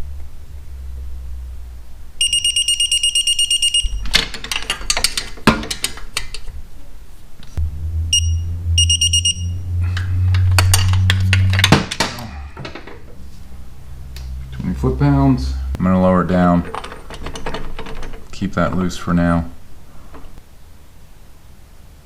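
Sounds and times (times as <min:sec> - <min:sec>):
steady low hum: 0:00.0 - 0:22.0
torque wrench beeping: 0:02.2 - 0:04.1, 0:08.1 - 0:09.6.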